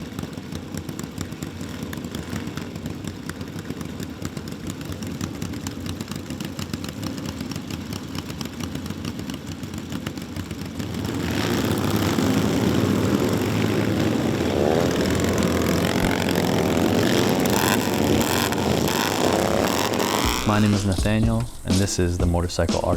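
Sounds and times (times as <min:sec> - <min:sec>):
motorcycle engine revving: 0:00.0 - 0:21.4.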